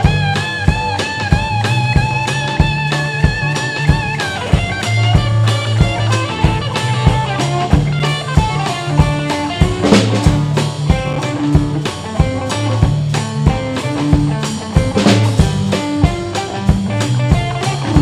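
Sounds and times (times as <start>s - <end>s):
bass line: 0.0s - 18.0s
blues guitar lines: 0.0s - 18.0s
drum kit beat: 0.0s - 18.0s.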